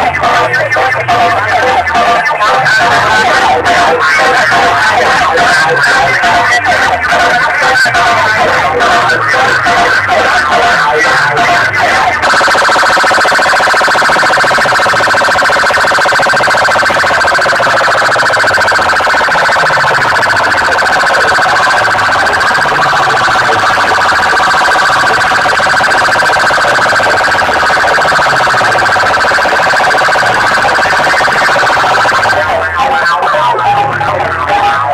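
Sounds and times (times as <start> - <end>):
distorted siren-like electronic music: 0.0 - 34.9.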